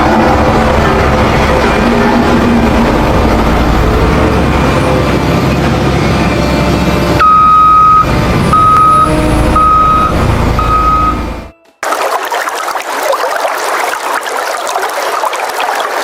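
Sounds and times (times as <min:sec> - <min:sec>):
heavy vehicle engine running: 0:00.0 - 0:11.5
reversing alarm beeping: 0:07.1 - 0:11.6.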